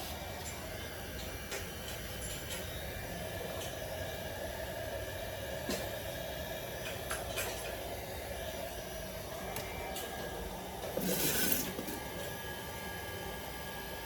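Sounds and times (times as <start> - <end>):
small electric motor whirring: 7.8 - 13.7.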